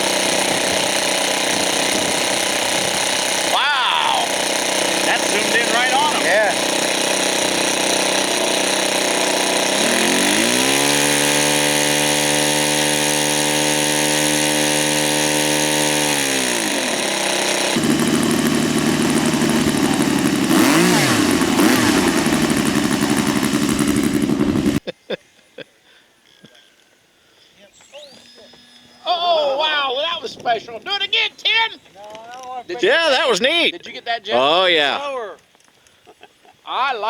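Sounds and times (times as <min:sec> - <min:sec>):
model airplane motor and propeller: 0:00.0 - 0:24.8.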